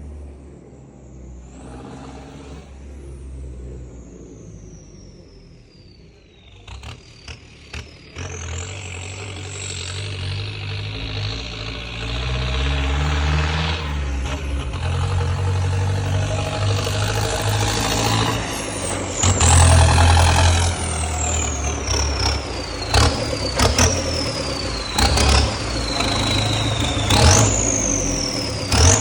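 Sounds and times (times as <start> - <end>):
diesel tractor engine revving: 0.0 - 29.0
high turbo whistle: 8.6 - 29.0.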